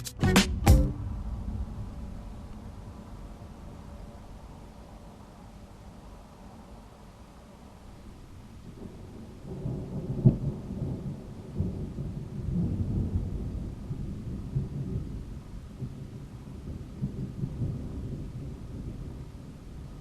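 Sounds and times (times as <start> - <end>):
thunder crack: 0.4 - 4.6
thunder rumbling: 0.5 - 6.8, 8.0 - 20.0.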